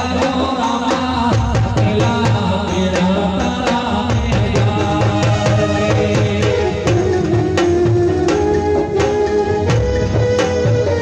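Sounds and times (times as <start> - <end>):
tabla-like drumming: 0.0 - 11.0
folk music with melodic lines: 3.0 - 11.0.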